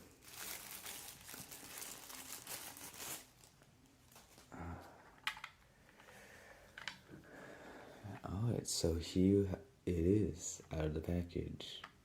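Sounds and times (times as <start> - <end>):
packaging crinkling: 0.0 - 4.5.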